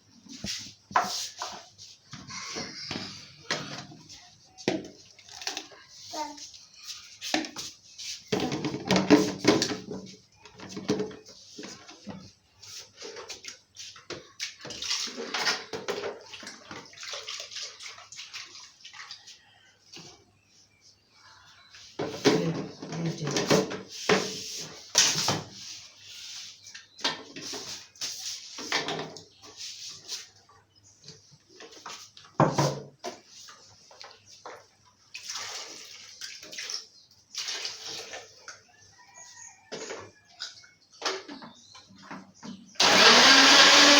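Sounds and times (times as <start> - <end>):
water pouring and splashing: 12.8 - 19.5, 33.1 - 38.7.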